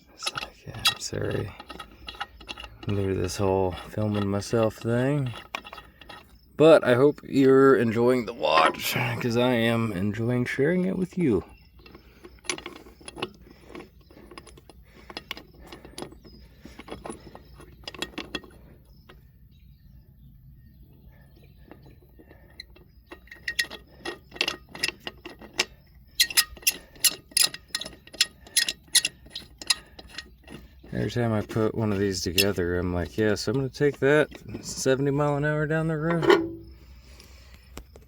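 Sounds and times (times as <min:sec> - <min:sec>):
wrench clicking on lug nuts: 0:22.7 - 0:32.6.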